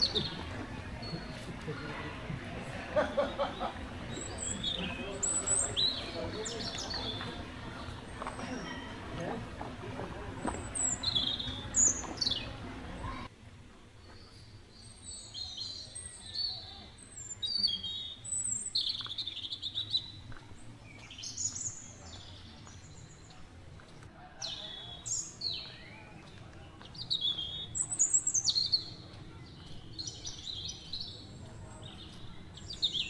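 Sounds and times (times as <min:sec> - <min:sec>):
birds chirping and whistling: 0:03.1 - 0:08.6, 0:10.6 - 0:13.3.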